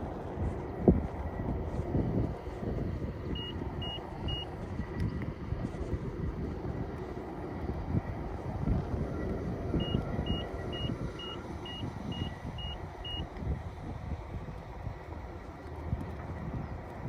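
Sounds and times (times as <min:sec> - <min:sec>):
wind buffeting microphone: 0:00.0 - 0:17.0
short high beeps: 0:03.4 - 0:04.5, 0:09.8 - 0:13.2.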